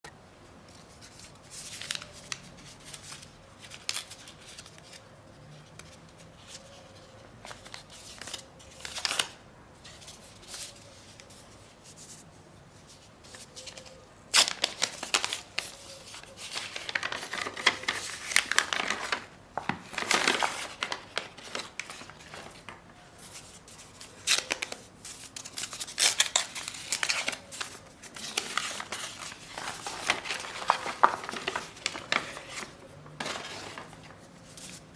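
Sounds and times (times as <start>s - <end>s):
hands crinkling and scraping: 13.4s - 34.9s.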